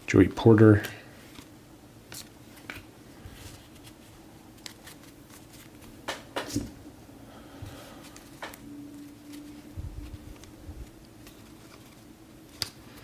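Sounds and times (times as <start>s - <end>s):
cards sliding: 2.1s - 6.7s, 10.3s - 13.0s
cards snapping clicks: 12.5s - 12.8s.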